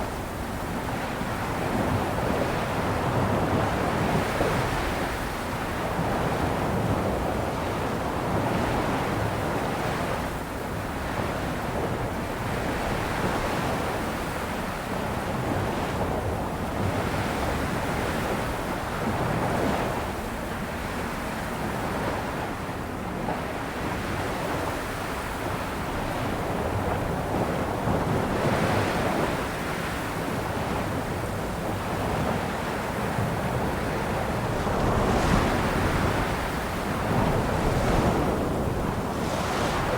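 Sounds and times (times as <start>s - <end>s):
wind noise on microphone: 0.0s - 39.9s
waves breaking on shore: 24.6s - 39.9s.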